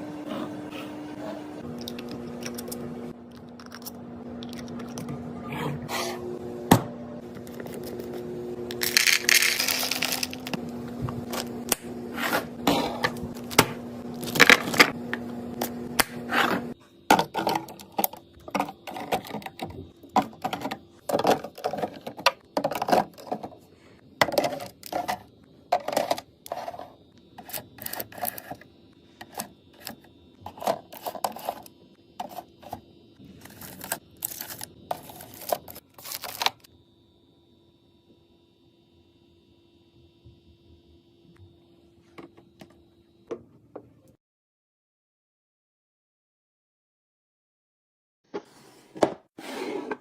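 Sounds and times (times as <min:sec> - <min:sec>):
food containers clattering: 0:16.4 - 0:23.6, 0:24.2 - 0:26.9.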